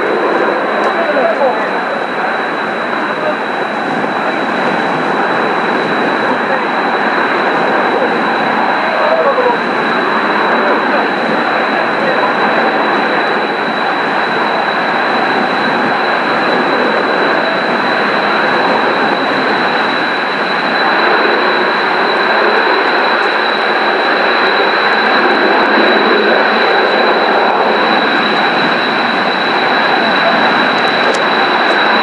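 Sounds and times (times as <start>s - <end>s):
jet engines idling: 0.0s - 32.0s.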